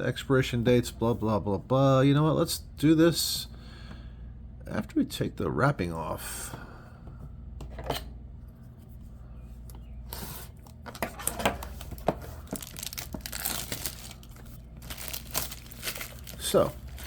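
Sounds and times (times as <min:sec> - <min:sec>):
plastic wrap tearing and crinkling: 0:11.0 - 0:17.0.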